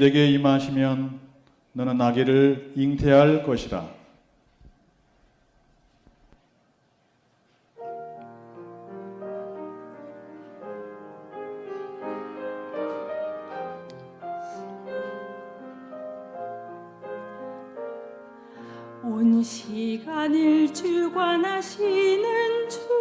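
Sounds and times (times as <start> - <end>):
piano melody over chords: 7.8 - 23.0.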